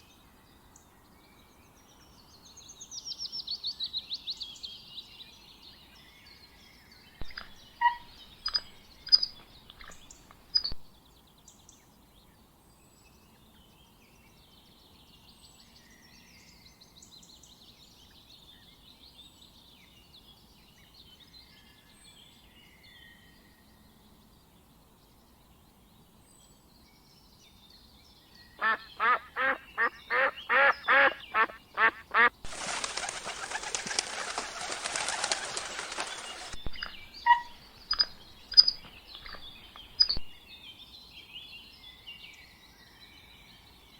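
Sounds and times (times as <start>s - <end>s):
birds chirping and twittering: 4.3s - 43.9s
sharp clicks: 7.2s - 10.8s, 32.7s - 40.3s
loud harsh bird calls: 7.3s - 10.8s, 28.6s - 40.4s.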